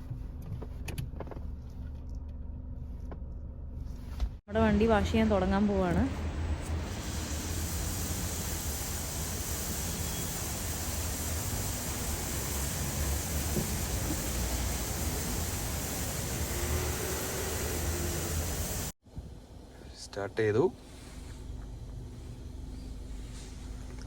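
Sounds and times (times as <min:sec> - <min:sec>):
car wash rushing hiss: 0:04.7 - 0:19.0.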